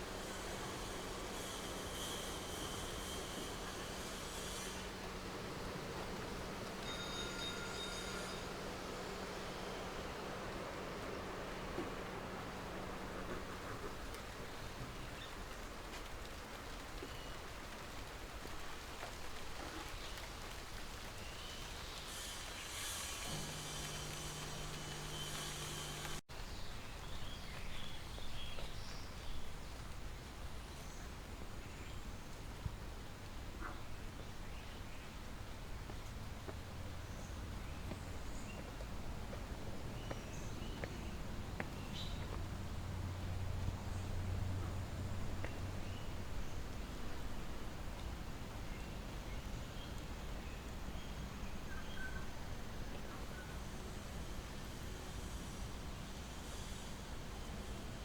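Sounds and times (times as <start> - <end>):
outdoor background hiss: 0.0 - 58.0
high-pitched hiss: 22.0 - 26.2, 51.0 - 58.0
steady low hum: 23.3 - 26.2.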